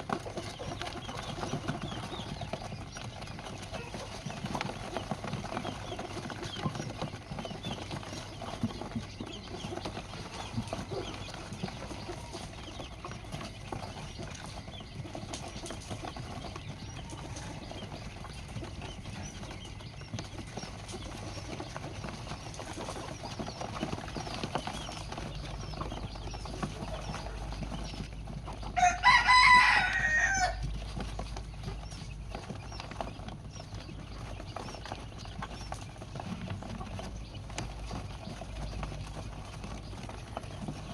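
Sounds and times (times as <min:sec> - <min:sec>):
rooster crowing: 0:28.8 - 0:30.7.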